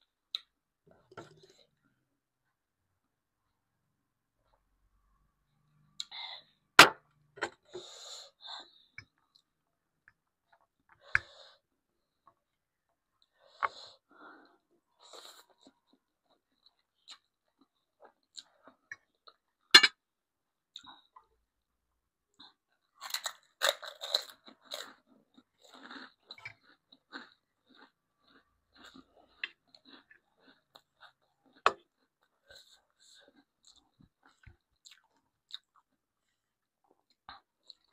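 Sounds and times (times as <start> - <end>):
chewing and crunching food: 12.0 - 19.7, 22.3 - 37.9.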